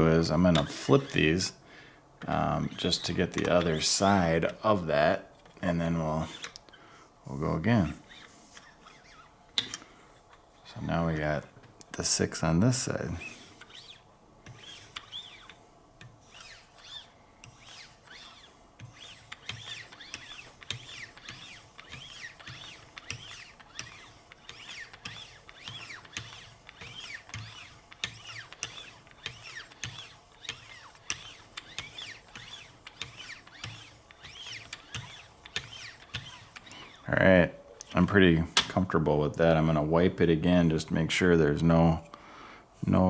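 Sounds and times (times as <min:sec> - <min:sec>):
sharpener strokes rubbing blade edge: 0:13.2 - 0:15.6, 0:16.2 - 0:37.0.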